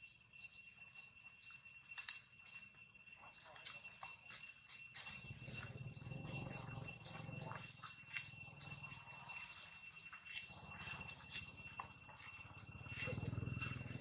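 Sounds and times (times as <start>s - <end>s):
high-pitched insect drone: 0.0s - 14.0s
small bird chirping: 0.0s - 14.0s.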